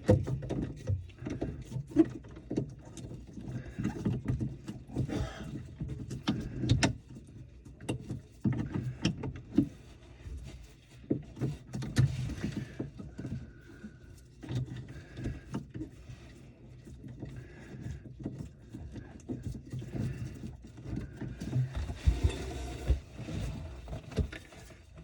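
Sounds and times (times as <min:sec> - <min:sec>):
handling noise knocks and clicks: 0:16.8 - 0:25.0.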